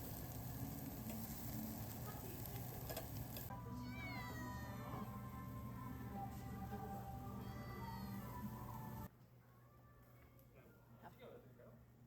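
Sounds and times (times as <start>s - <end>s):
meat sizzling on a grill: 0.0s - 3.5s
background music: 0.1s - 12.0s.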